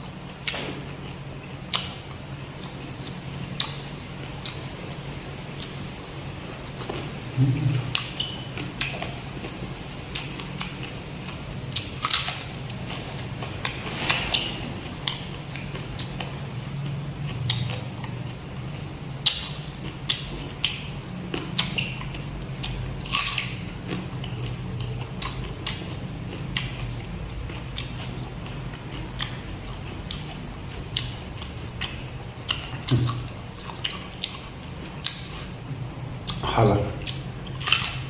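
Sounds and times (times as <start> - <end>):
steady low hum: 0.0 - 38.0
crunchy bites and chewing: 11.7 - 16.4, 19.2 - 35.5, 37.0 - 38.0.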